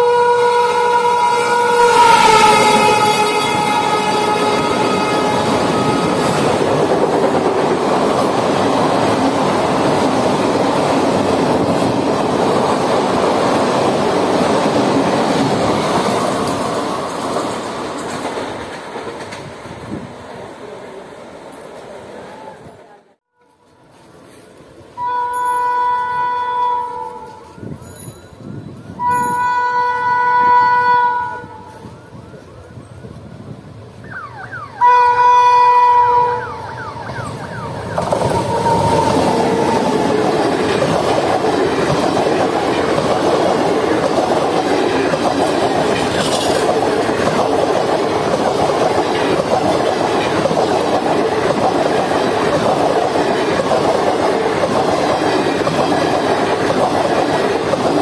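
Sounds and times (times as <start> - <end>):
train horn blasts: 0.0 - 6.6, 25.0 - 27.6, 29.0 - 32.0, 34.8 - 37.6, 38.2 - 40.1
wheels rushing on rails: 0.0 - 58.0.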